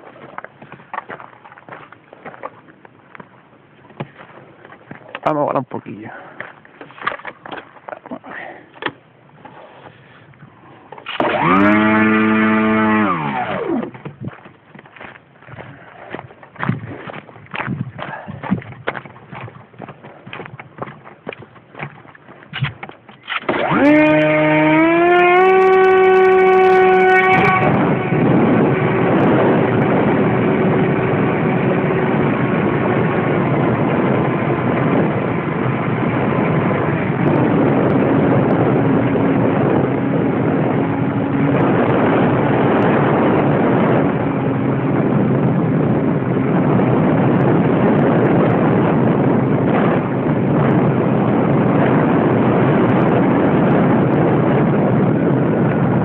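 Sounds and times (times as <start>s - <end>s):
model airplane motor whine: 11.2s - 14.2s, 23.4s - 43.1s.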